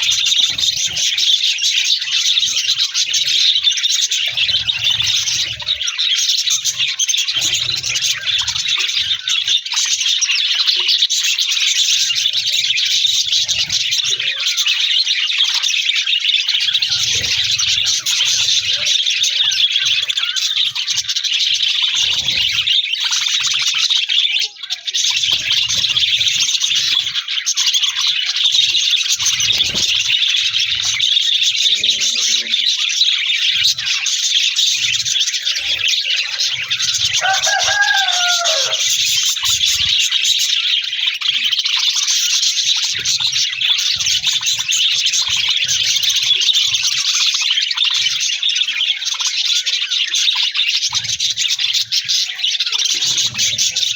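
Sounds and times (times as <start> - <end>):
budgerigars chattering: 0.0 - 53.9
low wavering bird call: 37.2 - 38.8.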